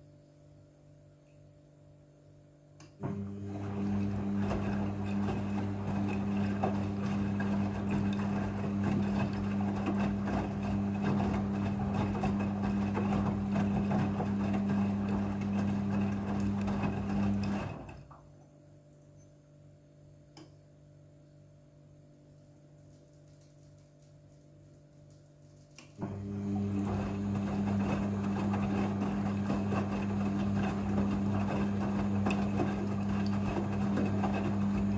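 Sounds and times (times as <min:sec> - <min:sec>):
washing machine water rushing: 0:03.0 - 0:18.1, 0:26.0 - 0:34.9
washing machine motor hum: 0:03.0 - 0:18.2, 0:26.0 - 0:34.9.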